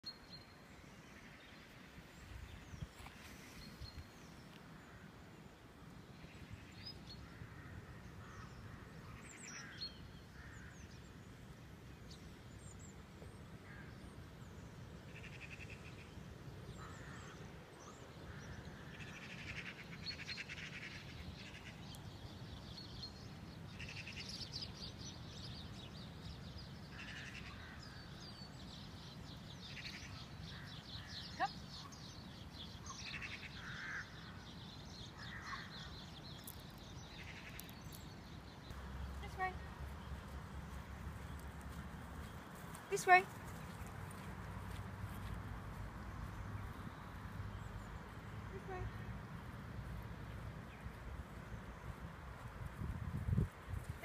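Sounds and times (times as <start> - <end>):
wild birds chirping: 0.0 - 54.0
wind rumble on microphone: 51.7 - 54.0.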